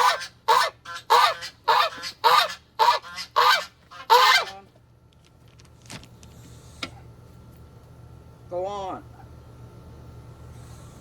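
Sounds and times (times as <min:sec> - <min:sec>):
goose honking loudly: 0:00.0 - 0:04.6.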